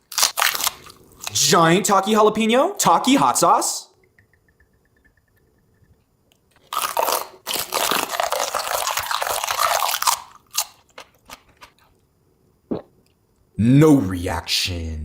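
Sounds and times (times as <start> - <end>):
crunching of crunchy food: 0.0 - 1.5, 6.5 - 12.0.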